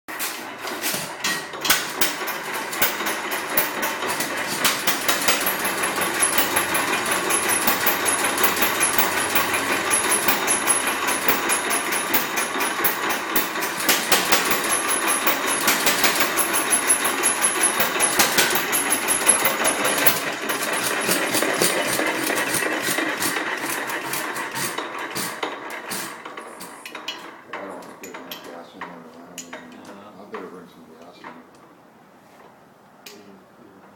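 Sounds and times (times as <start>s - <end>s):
engine clattering: 0.5s - 29.0s.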